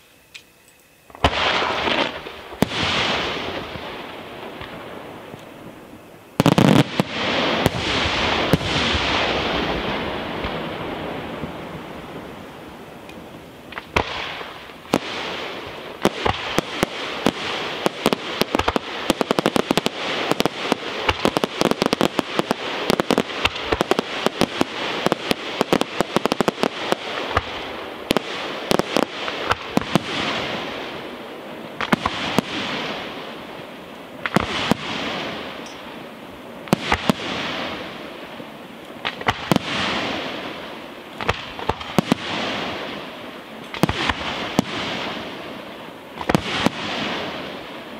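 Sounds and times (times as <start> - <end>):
fireworks hissing: 1.1 - 47.9
fireworks popping and crackling: 1.1 - 47.9.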